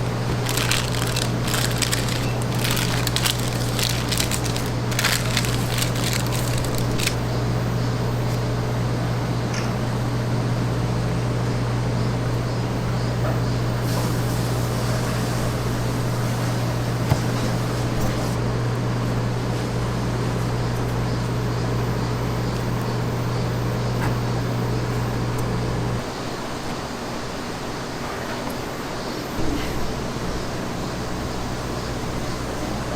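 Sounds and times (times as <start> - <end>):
machine humming: 0.0 - 9.2.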